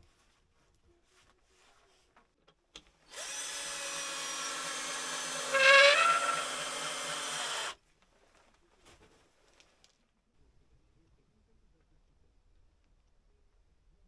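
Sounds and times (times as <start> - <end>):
electric power tool motor running: 3.1 - 7.8.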